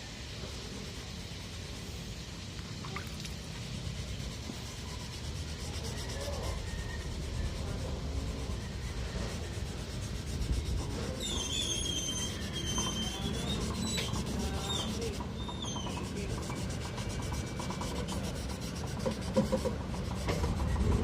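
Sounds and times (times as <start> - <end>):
wet sandpaper rubbing on car panel: 3.4 - 21.0
short high squeaks: 11.0 - 16.2.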